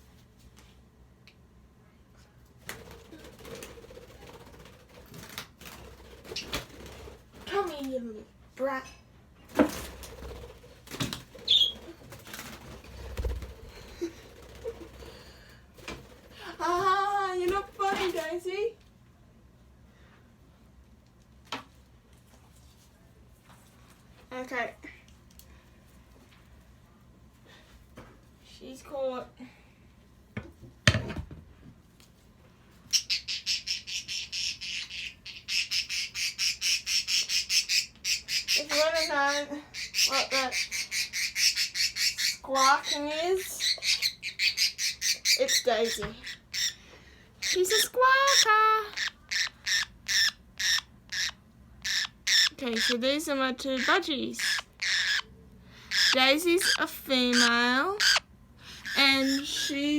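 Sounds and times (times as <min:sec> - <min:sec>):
bird wings flapping: 0:02.6 - 0:08.0, 0:09.5 - 0:16.8
budgerigar squawking: 0:32.9 - 0:46.8, 0:47.4 - 0:53.0, 0:53.8 - 0:55.3, 0:55.9 - 0:59.8
budgerigar high call: 0:48.3 - 0:53.0, 0:53.8 - 0:55.3, 0:55.9 - 0:58.2.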